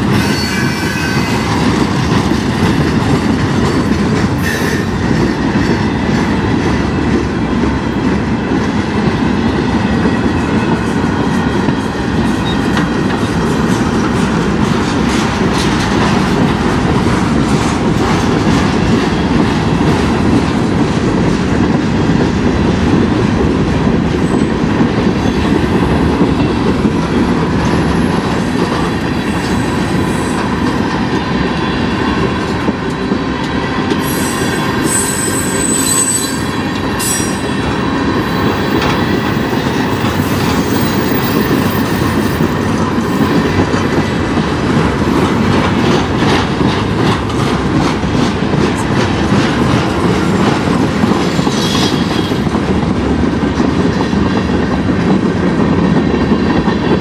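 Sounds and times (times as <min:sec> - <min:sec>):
freight train wheels on rails: 0:00.0 - 0:57.0
high-pitched wheel squeal: 0:00.2 - 0:01.5, 0:34.0 - 0:37.7.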